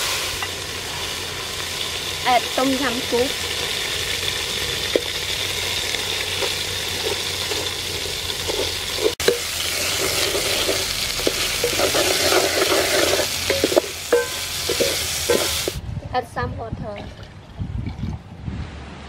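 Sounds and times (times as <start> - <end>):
food sizzling in oil: 0.0 - 15.8
wooden spoon scraping metal pot: 6.2 - 15.8.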